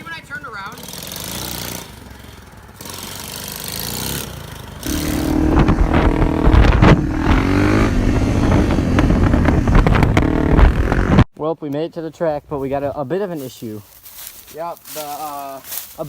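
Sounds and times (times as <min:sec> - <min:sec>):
small motorbike engine revving: 0:00.3 - 0:11.2
rushing noise: 0:04.8 - 0:11.2.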